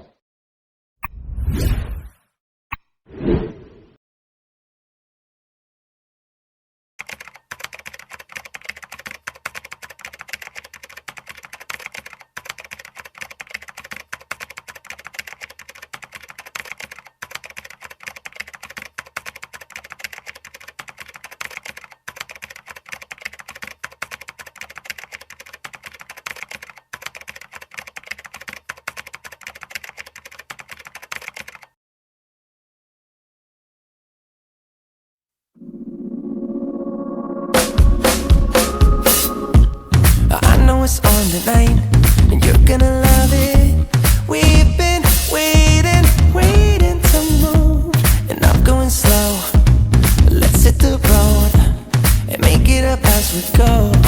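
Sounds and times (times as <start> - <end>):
keyboard typing: 7.0 - 31.8, 38.0 - 54.0.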